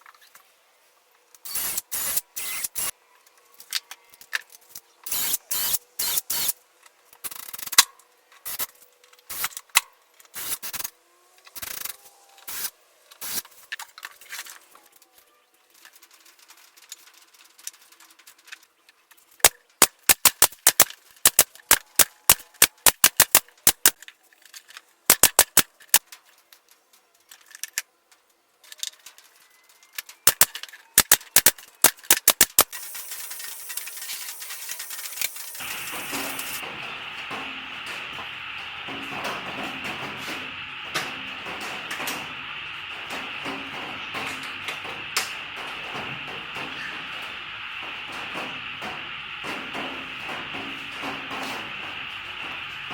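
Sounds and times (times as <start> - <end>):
pneumatic nailer hissing bursts: 1.4 - 2.9, 5.1 - 6.6, 9.3 - 9.6, 10.3 - 10.9, 12.5 - 13.6, 30.3 - 52.9.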